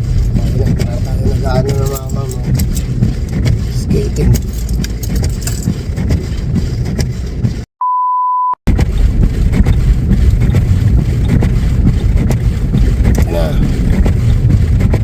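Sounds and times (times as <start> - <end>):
truck rumbling through snow: 0.0 - 7.7, 8.7 - 15.0
beep tone: 7.8 - 8.6.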